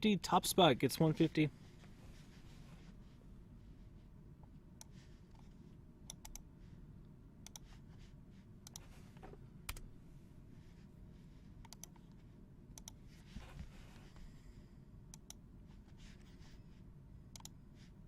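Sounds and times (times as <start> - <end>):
low room hum: 0.0 - 18.0
computer mouse clicks: 6.1 - 6.5, 7.4 - 7.7, 8.6 - 8.9, 11.6 - 12.2, 12.8 - 13.0, 15.1 - 15.4, 17.3 - 17.6.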